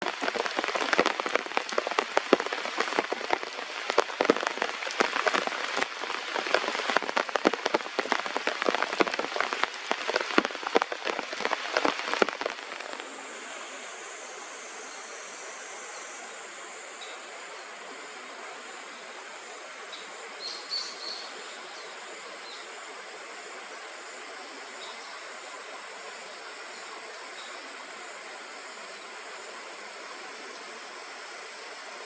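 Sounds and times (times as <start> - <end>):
rain pattering on a surface: 0.0 - 13.9
steady high hiss: 0.0 - 32.0.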